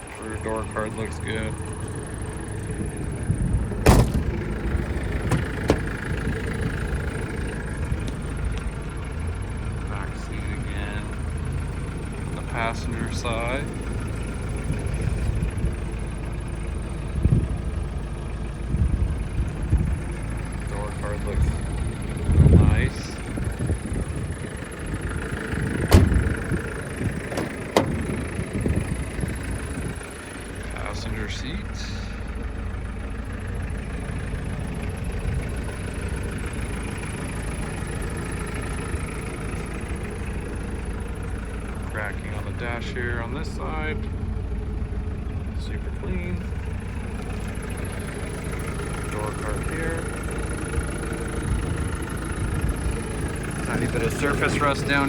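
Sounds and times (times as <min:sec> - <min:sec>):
low rumble: 0:00.0 - 0:55.0
car door slamming: 0:03.8 - 0:06.0, 0:25.8 - 0:26.6, 0:27.3 - 0:28.2.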